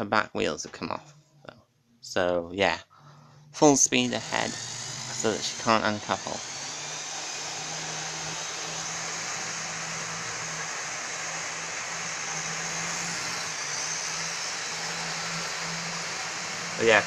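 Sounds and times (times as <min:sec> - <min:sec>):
model train running on track: 0:04.2 - 0:07.5.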